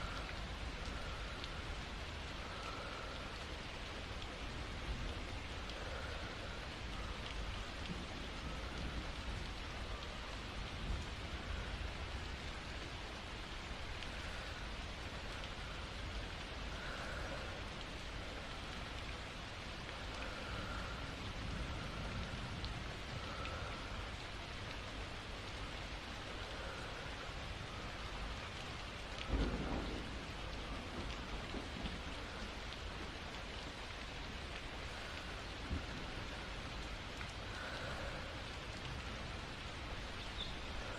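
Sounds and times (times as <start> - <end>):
low rumble of thunder: 0.0 - 12.8, 20.0 - 25.4, 28.8 - 40.9
steady rainfall: 0.0 - 40.9.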